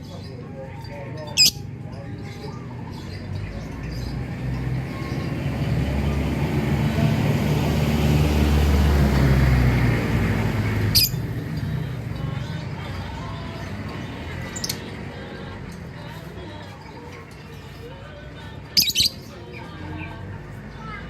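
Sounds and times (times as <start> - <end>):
high bird chirp: 1.3 - 1.7, 10.8 - 11.8, 18.8 - 19.4
vehicle engine passing by: 2.7 - 16.5.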